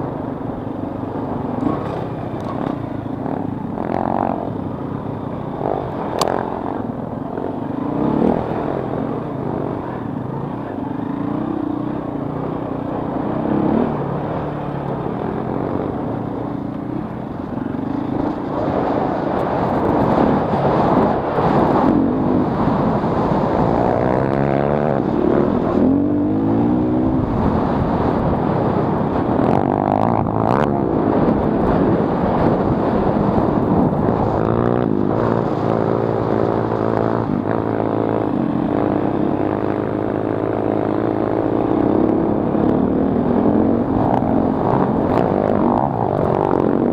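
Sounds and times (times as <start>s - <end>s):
dirt bike engine revving: 1.2s - 46.9s.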